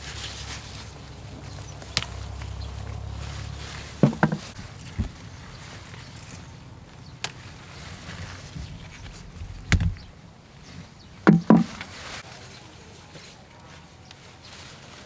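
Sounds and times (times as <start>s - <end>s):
corn ears snapping: 0.2s - 10.2s.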